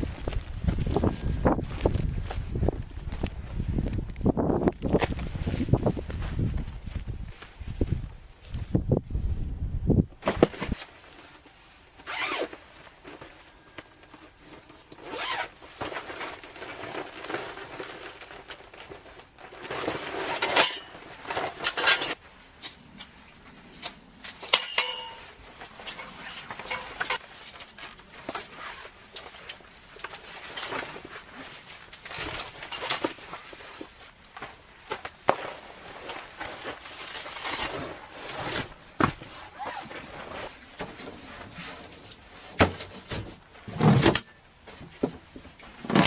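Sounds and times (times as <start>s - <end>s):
zipping: 12.0s - 12.6s, 15.0s - 15.6s, 37.2s - 40.5s
fabric rustling and swishes: 30.2s - 42.6s.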